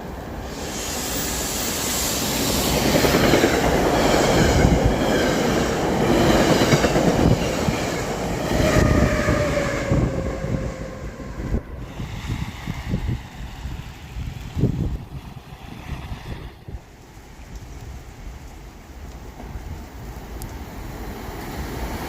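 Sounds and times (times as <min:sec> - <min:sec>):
train wheels squealing: 0:00.4 - 0:05.3.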